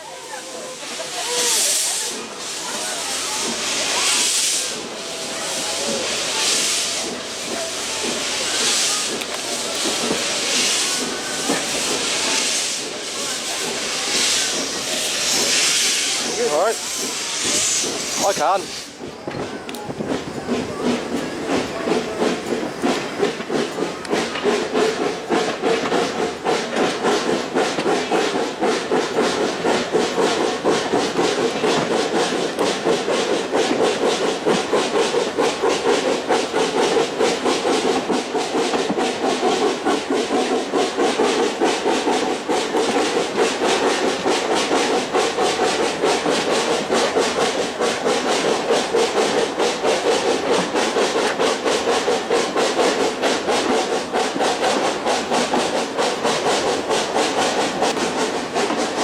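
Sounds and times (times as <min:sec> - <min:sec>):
steam locomotive chuffing: 0:00.0 - 0:59.0.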